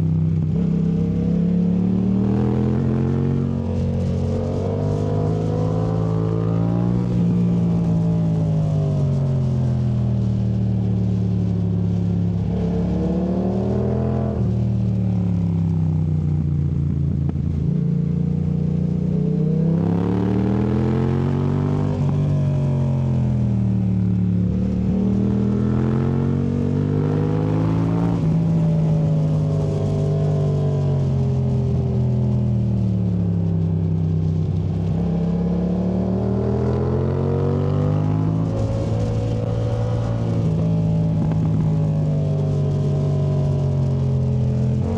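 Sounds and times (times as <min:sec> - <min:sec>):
motorcycle engine accelerating: 0:00.0 - 0:44.9.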